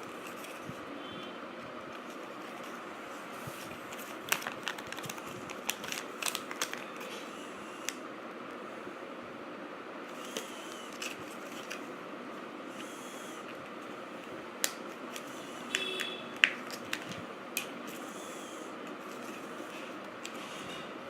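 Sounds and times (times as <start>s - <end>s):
plastic parts clicking and snapping: 14.6s - 17.7s.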